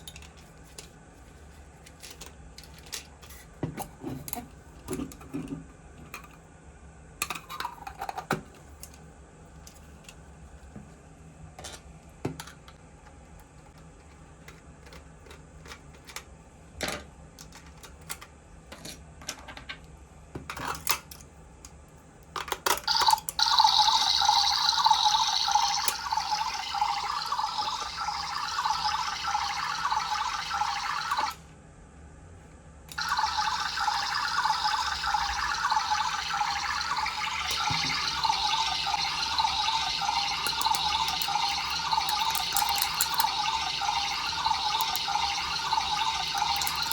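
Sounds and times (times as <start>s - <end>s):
running water stream: 33.0s - 46.9s.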